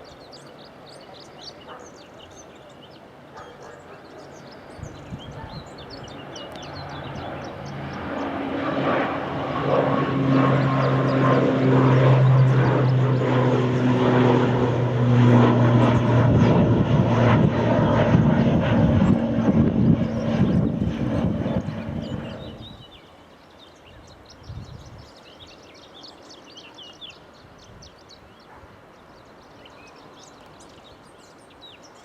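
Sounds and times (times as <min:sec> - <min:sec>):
airliner engines running: 0:00.0 - 0:23.2.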